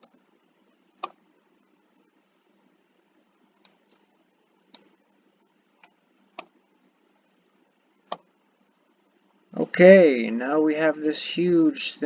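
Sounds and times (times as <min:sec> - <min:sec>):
faint steady hiss: 0:00.0 - 0:12.0
computer mouse clicking: 0:01.0 - 0:01.2, 0:03.6 - 0:04.0, 0:04.7 - 0:04.9, 0:05.8 - 0:06.6, 0:08.0 - 0:08.3.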